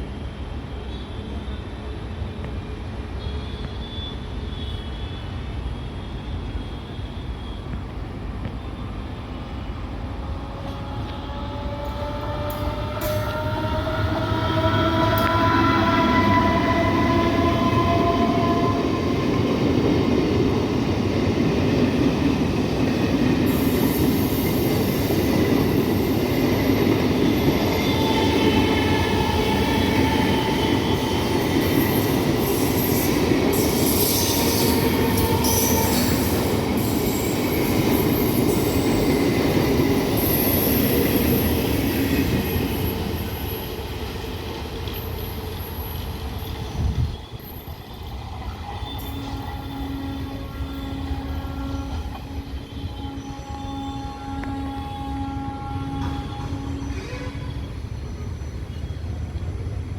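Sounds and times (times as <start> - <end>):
train wheels rumbling: 7.6 - 59.9
high wheel squeals: 26.0 - 41.4, 44.9 - 54.2.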